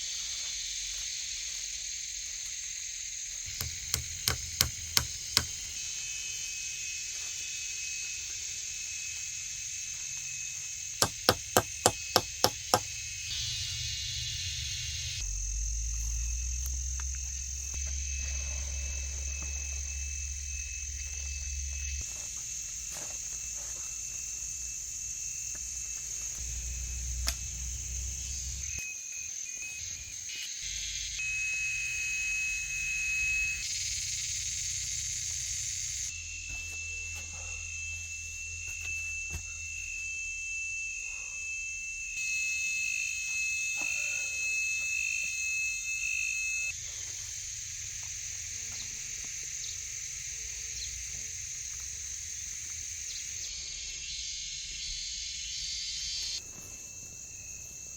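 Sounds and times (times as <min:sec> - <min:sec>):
insects hissing: 0:00.0 - 0:57.9
shrill insect call: 0:00.0 - 0:57.9
knocks: 0:03.5 - 0:05.6, 0:11.0 - 0:12.9.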